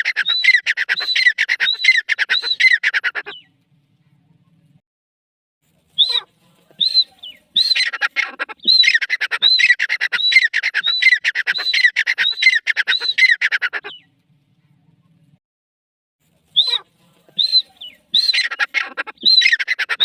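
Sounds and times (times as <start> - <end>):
francolin calling: 16.6 - 20.0.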